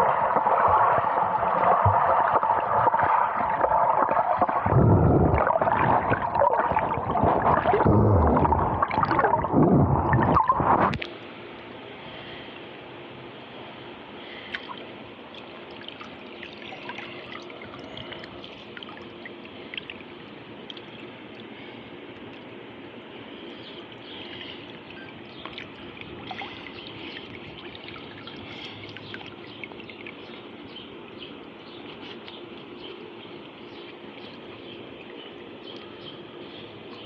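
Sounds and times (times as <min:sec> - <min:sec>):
underwater water rushing and gurgling: 0:00.0 - 0:11.0.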